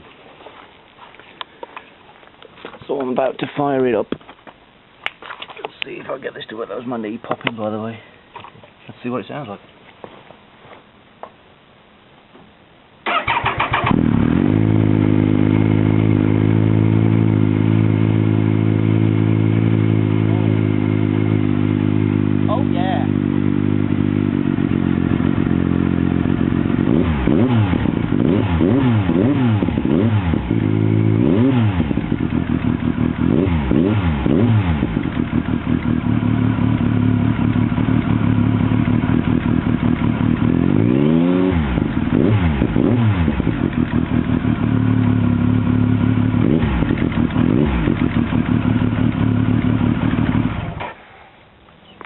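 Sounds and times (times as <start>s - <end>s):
motorcycle engine idling and revving: 13.1s - 51.1s.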